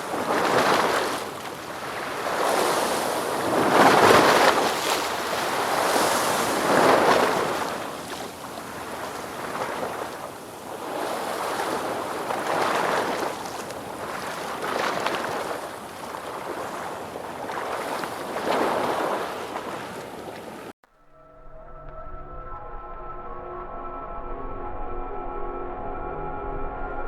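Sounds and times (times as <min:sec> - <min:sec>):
ocean waves breaking: 0:00.0 - 0:20.7.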